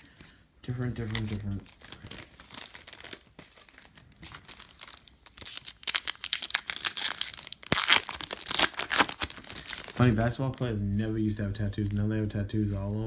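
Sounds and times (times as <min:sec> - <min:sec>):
plastic wrapper crinkling and tearing: 0:00.9 - 0:10.8.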